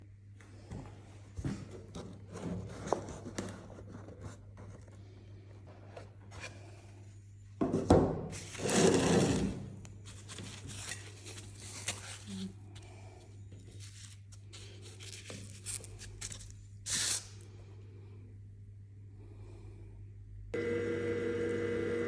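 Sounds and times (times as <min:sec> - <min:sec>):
steady low hum: 0:09.5 - 0:22.0.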